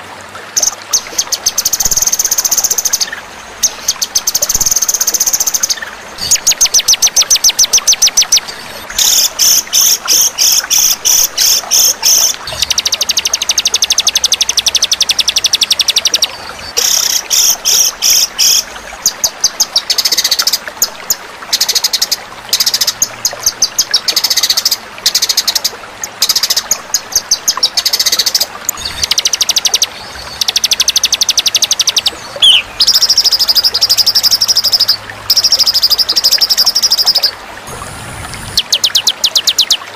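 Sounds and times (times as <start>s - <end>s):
songbird singing high trills: 28.8s - 37.3s.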